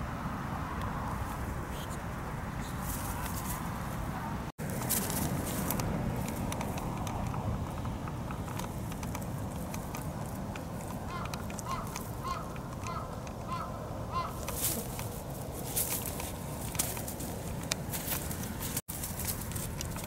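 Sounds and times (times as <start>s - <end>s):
dry grass crackling and rustling: 2.6s - 20.0s
bird calling: 9.6s - 18.8s.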